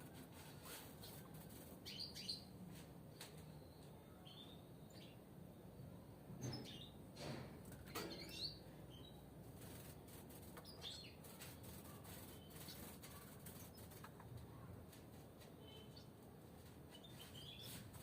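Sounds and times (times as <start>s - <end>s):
wing flutters: 9.5s - 14.3s.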